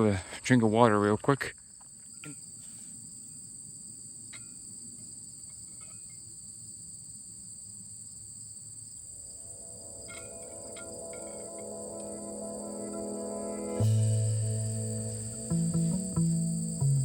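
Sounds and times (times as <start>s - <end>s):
crickets chirring: 0.0s - 17.0s
soft ambient music: 9.3s - 17.0s.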